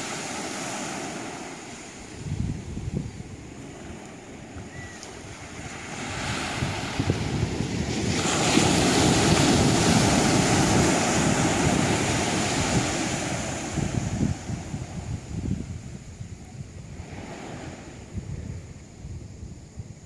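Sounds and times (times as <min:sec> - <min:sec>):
ocean wave surging: 0:00.0 - 0:14.9.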